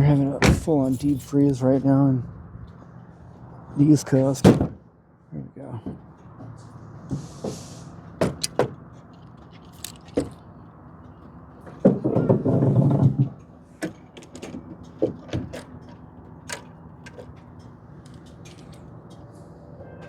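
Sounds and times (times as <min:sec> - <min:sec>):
rustling scrape: 0:06.6 - 0:08.0.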